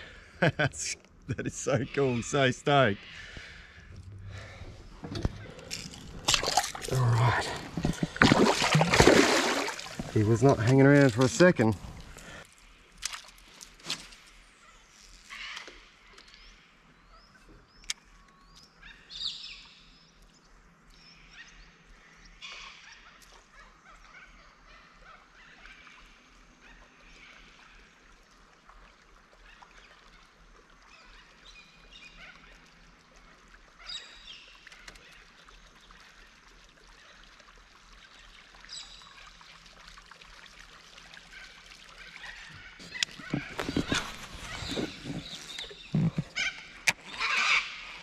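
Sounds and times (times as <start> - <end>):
birds chirping and calling: 42.0 - 48.0.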